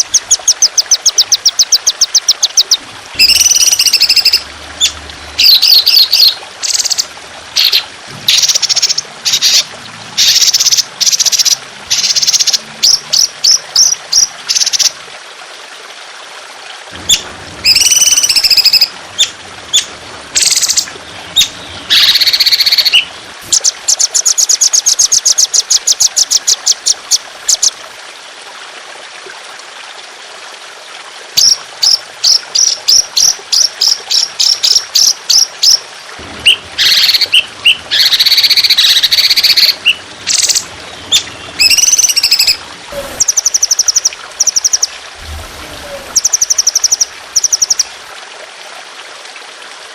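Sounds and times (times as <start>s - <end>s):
water trickling: 0.0s - 49.9s
songbird singing and trilling: 0.1s - 7.0s, 17.1s - 27.7s, 36.5s - 44.9s.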